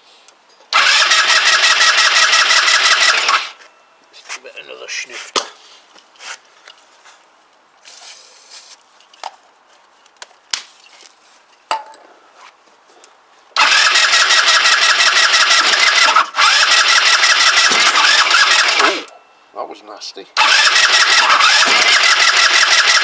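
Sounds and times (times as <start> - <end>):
scooter engine cranking: 0.8 - 3.6, 13.6 - 19.1, 20.4 - 23.0.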